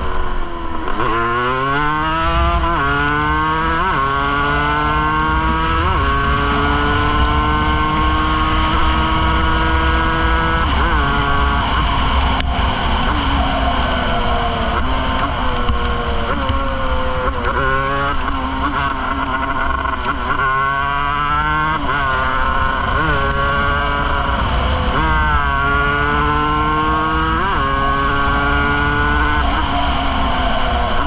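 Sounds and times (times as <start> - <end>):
two-stroke motorcycle engine revving: 0.0 - 31.0.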